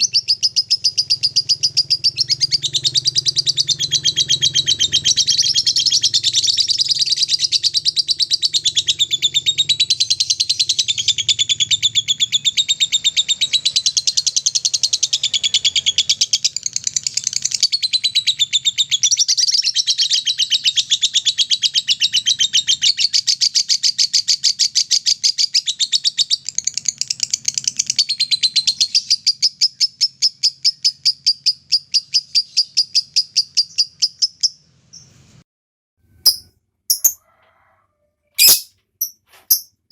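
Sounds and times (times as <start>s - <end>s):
lovebird chattering trill: 36.3s - 37.2s, 38.4s - 39.7s.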